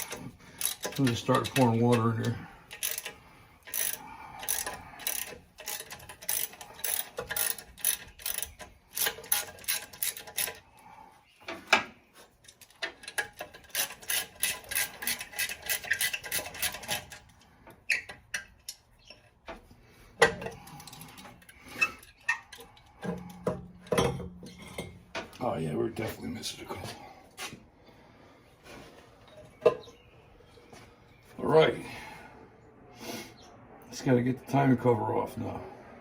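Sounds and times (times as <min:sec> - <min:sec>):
hand ratchet clicking: 0:00.0 - 0:10.6, 0:12.5 - 0:19.3.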